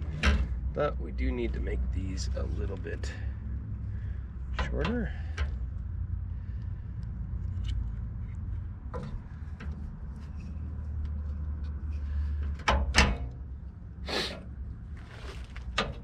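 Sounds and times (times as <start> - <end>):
low hum: 0.0 - 12.8.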